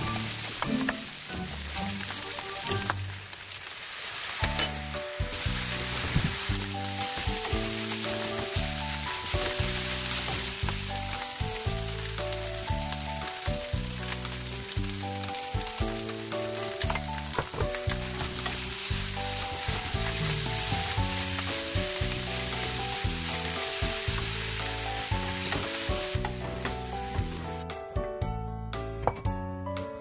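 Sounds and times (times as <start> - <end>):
background music: 0.0 - 3.3, 4.4 - 30.0
rice sizzling in a wok: 0.0 - 27.6
spatulas stirring in a wok: 3.6 - 15.0, 15.7 - 26.8.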